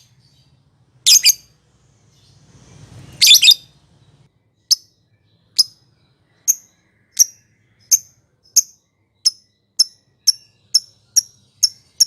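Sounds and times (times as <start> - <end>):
lovebird sharp high chirps: 1.1 - 1.5, 3.1 - 3.7, 6.4 - 12.0.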